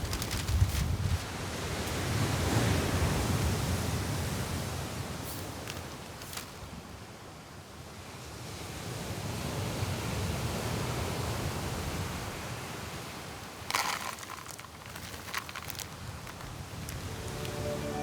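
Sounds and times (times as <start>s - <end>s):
rustling clicks: 0.0s - 1.2s, 13.6s - 17.6s
strong wind: 0.0s - 1.4s.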